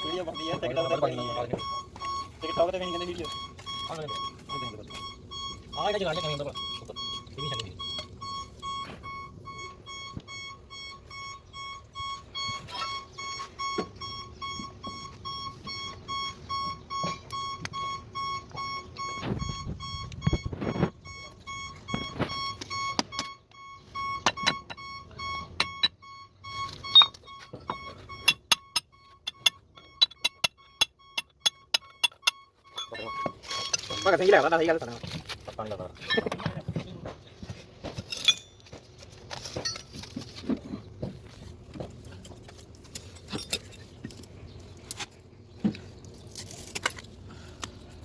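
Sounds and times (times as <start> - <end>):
electronic warning buzzer beeping: 0.0 - 34.2
metallic knocks: 24.0 - 26.0, 26.6 - 34.2.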